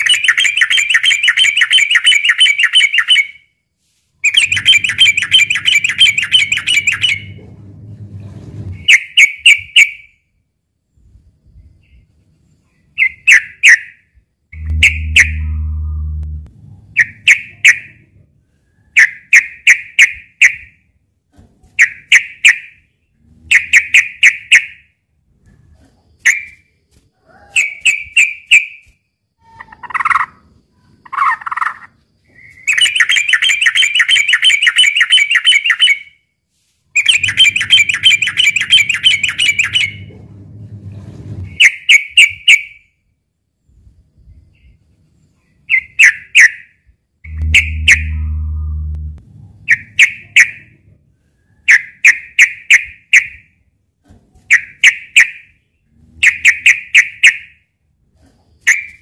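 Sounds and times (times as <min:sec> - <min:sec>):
bulbul calling: 0:04.2 - 0:07.4, 0:14.6 - 0:16.4, 0:37.0 - 0:40.1, 0:47.3 - 0:50.7.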